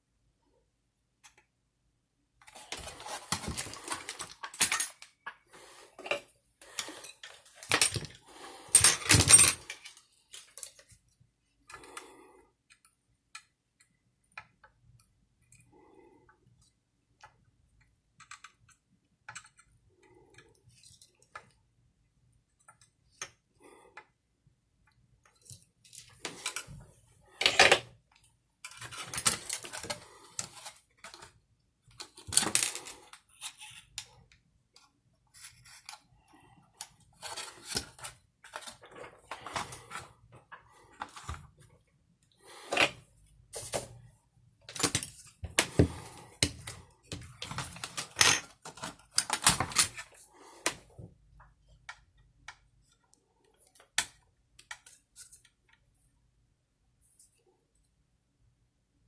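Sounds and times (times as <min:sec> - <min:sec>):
small hard parts clattering: 0:02.5 - 0:05.4, 0:06.0 - 0:10.8.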